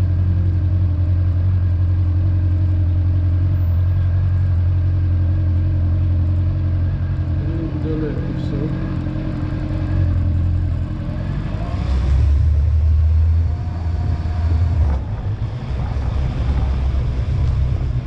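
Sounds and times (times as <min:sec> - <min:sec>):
motorcycle engine rumble: 0:00.0 - 0:18.0.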